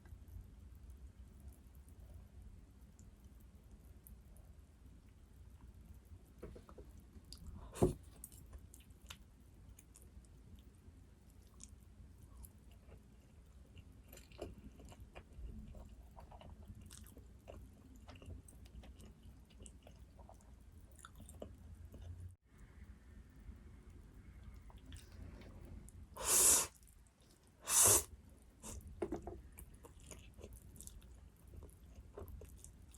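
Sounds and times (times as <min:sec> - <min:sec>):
chewing and biting food: 0:12.4 - 0:22.2, 0:29.5 - 0:32.9.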